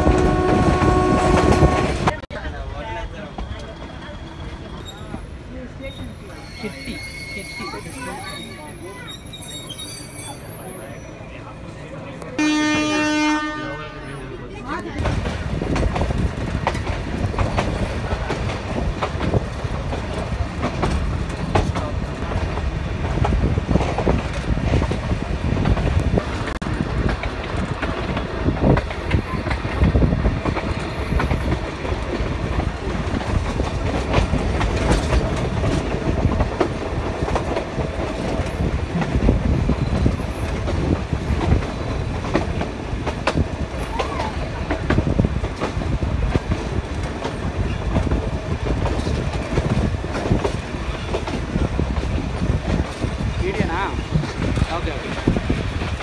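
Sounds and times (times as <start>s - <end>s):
train rumbling: 0.0s - 56.0s
wheels clacking over rail joints: 14.6s - 56.0s.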